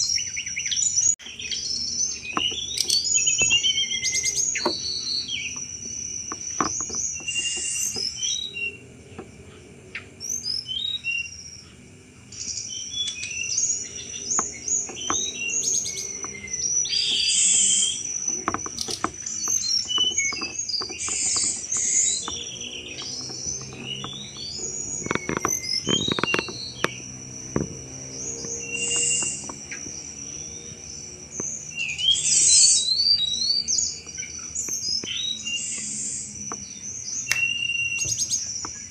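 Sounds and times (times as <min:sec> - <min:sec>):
high insect-like tone: 0:00.0 - 0:38.9
bird chattering chirps: 0:00.2 - 0:08.8, 0:12.3 - 0:38.9.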